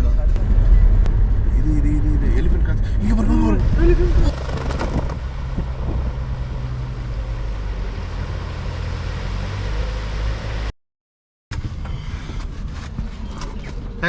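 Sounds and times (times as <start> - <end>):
low engine drone: 0.0 - 10.7
road noise: 0.0 - 10.7.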